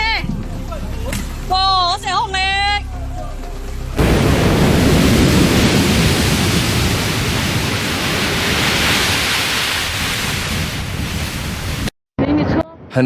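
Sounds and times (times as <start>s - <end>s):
rushing floodwater: 4.0s - 11.9s.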